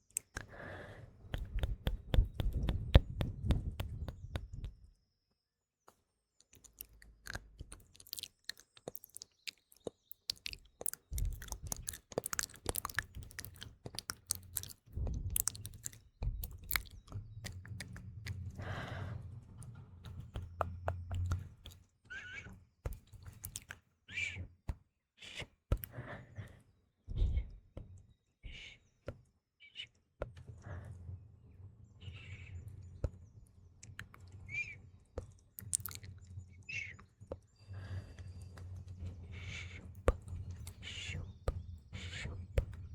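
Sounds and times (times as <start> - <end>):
wet mouth clicks and smacks: 0.0 - 4.8, 6.5 - 18.9, 20.1 - 21.8, 22.9 - 23.8, 35.6 - 36.1
faint birdsong: 0.0 - 24.5, 31.5 - 42.9.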